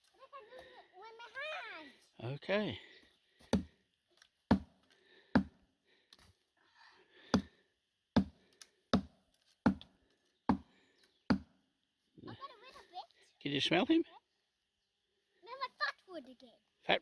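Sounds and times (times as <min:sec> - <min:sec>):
blade chopping into wood: 0:08.2 - 0:09.9.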